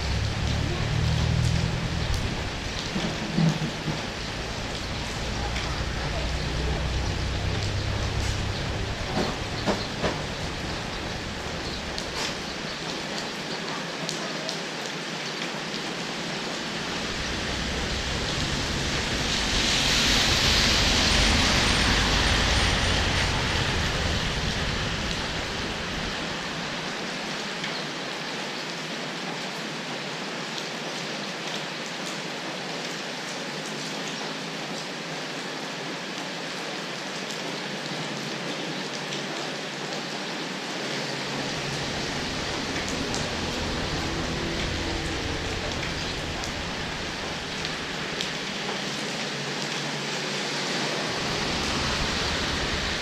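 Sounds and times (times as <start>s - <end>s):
heavy rain hissing: 0.0s - 29.1s, 37.5s - 53.0s.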